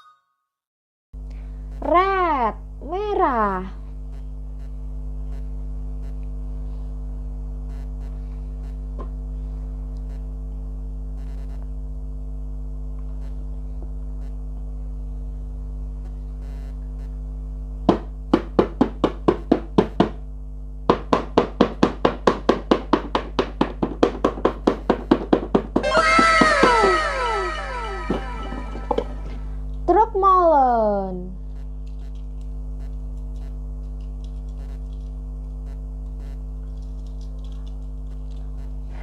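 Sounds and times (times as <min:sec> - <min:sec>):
rapid even ticking clicks: 0:31.5 - 0:38.9.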